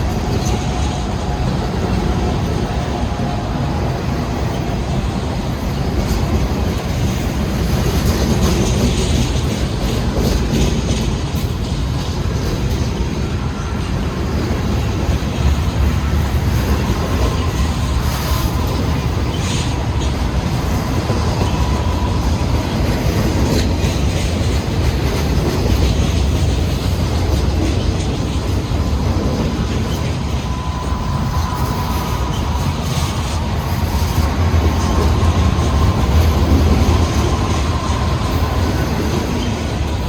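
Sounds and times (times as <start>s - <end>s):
train clanks: 0.0s - 40.0s
train wheels rumbling on rail: 0.0s - 40.0s
faint wheel squeal: 28.9s - 40.0s.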